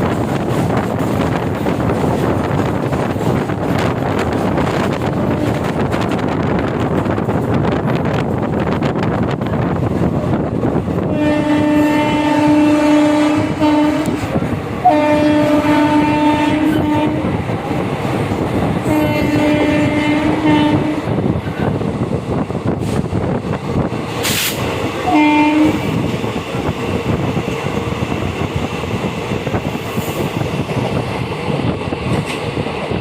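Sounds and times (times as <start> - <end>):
moving train rumble: 0.0 - 33.0
locomotive horn blasts: 5.3 - 5.8, 11.1 - 17.4, 18.8 - 21.2, 24.3 - 26.0.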